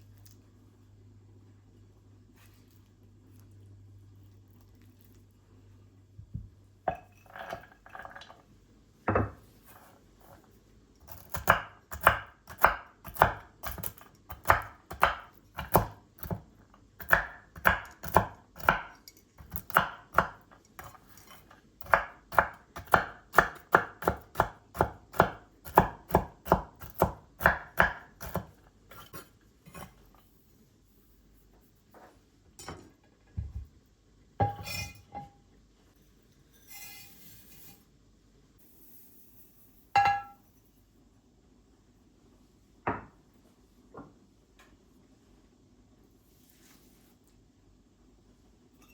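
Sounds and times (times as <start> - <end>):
knife chopping on cutting board: 11.1 - 29.9.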